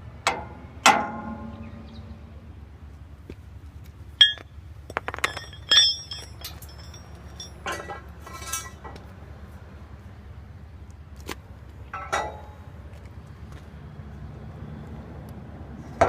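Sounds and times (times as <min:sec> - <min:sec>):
steel clinks with metallic ring: 0:04.2 - 0:08.9
metal scraping: 0:04.2 - 0:09.0.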